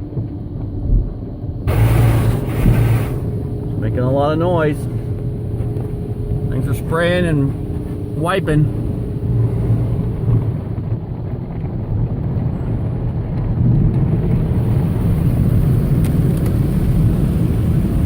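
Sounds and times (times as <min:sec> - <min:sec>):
wash brushes against car: 0:01.7 - 0:10.6
car wash water spray: 0:01.7 - 0:10.9, 0:12.5 - 0:18.0.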